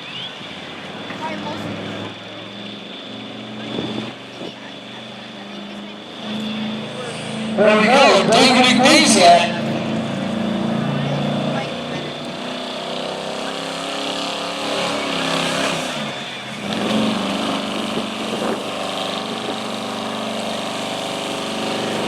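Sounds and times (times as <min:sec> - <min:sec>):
vehicle engine idling: 0:00.0 - 0:22.0
background voices: 0:03.6 - 0:12.3.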